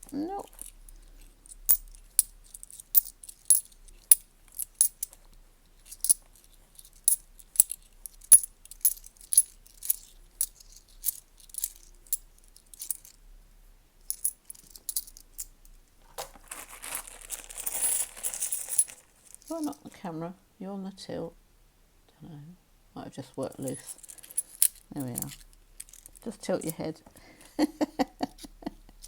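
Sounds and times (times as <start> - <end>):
coins clinking: 0.0 - 5.2, 5.8 - 13.2, 14.1 - 15.5, 16.2 - 19.9, 23.6 - 26.8
rattle of coins moving together: 0.1 - 5.2, 5.8 - 13.2, 14.1 - 15.5, 16.5 - 19.8, 23.6 - 26.8.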